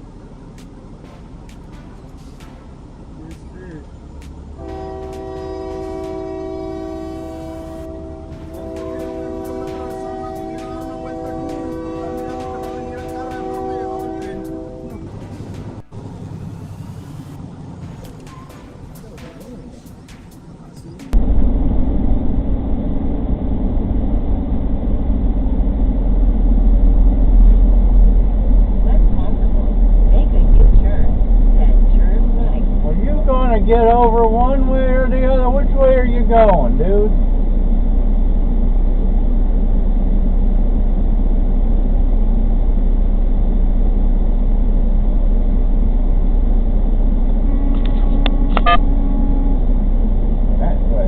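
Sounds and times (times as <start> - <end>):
road noise: 0.0 - 51.0
vehicle engine rumble: 0.0 - 51.0
brief tone: 47.4 - 49.7.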